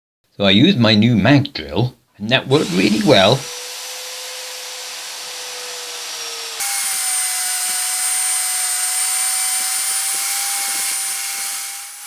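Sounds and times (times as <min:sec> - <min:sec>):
magnetic drill whine: 0:02.5 - 0:12.0.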